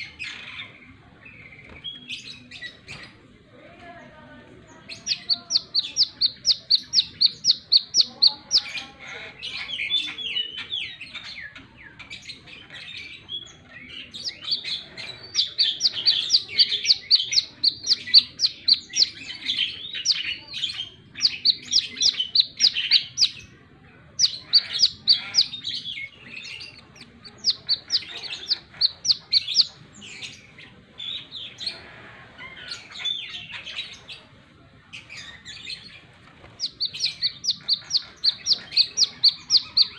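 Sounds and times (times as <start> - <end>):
bird chattering: 4.8 - 31.8, 35.0 - 39.9
bird singing high rapid notes: 4.9 - 8.8, 13.4 - 23.5, 36.6 - 39.9.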